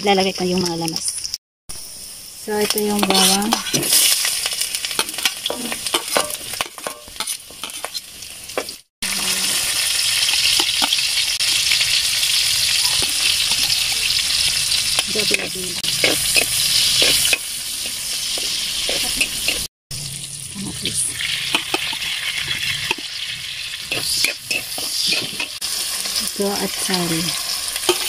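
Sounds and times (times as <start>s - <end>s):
onion and garlic sizzling in fat: 0.0s - 28.0s
spatula scraping metal pan: 2.9s - 4.2s, 4.9s - 8.0s, 15.2s - 19.7s, 23.8s - 25.6s.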